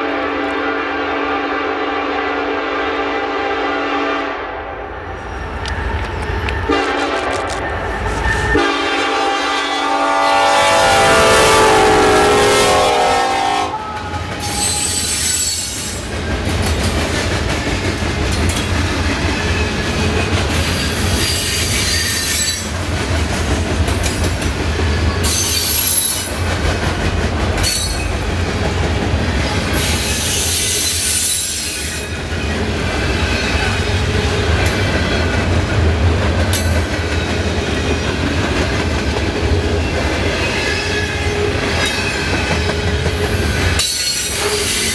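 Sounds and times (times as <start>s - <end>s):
locomotive horn: 0.0s - 4.9s, 6.0s - 15.5s
train rumbling past: 0.0s - 44.9s
high wheel squeal: 5.1s - 9.8s, 13.7s - 16.5s, 19.4s - 22.8s, 25.0s - 26.4s, 29.7s - 34.0s
wheels clacking over rail joints: 13.7s - 44.9s.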